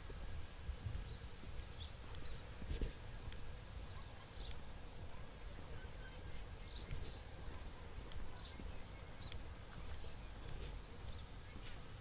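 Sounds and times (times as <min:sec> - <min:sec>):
high bird chirps: 0:00.6 - 0:02.7, 0:03.7 - 0:12.0
faint clicks: 0:01.8 - 0:05.0, 0:06.3 - 0:11.9.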